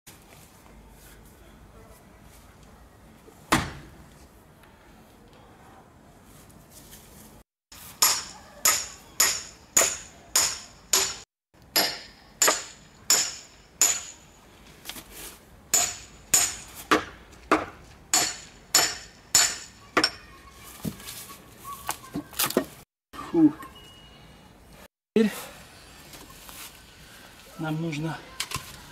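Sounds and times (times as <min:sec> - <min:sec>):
metal tool striking wooden log: 0:08.0 - 0:14.2, 0:15.7 - 0:20.2.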